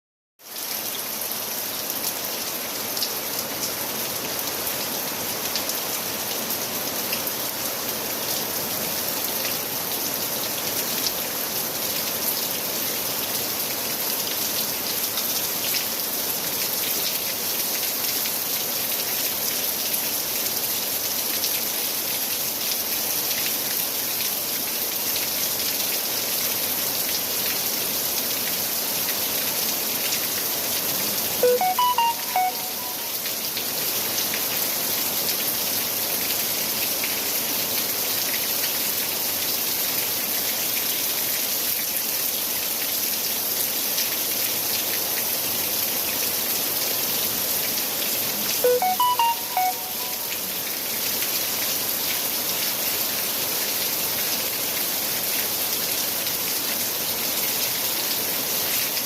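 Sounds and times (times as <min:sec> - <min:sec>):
heavy rain: 0:00.4 - 0:59.0.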